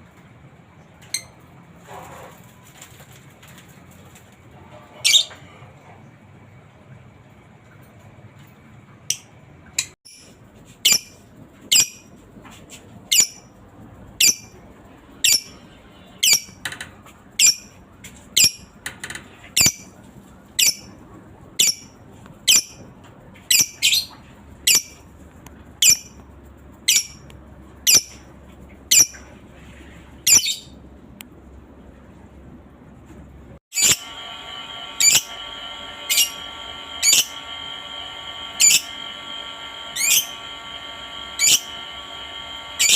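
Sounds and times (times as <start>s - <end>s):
lovebird shrill calls: 10.9s - 12.0s, 33.8s - 34.1s, 37.0s - 37.4s, 38.6s - 38.9s.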